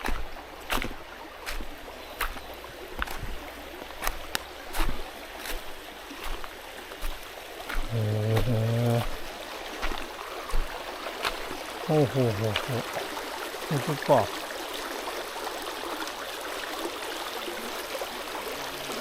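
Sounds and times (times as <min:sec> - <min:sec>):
footsteps crunching on stones: 0:00.0 - 0:12.8
mountain stream rushing: 0:00.0 - 0:19.0
man humming: 0:07.9 - 0:09.2.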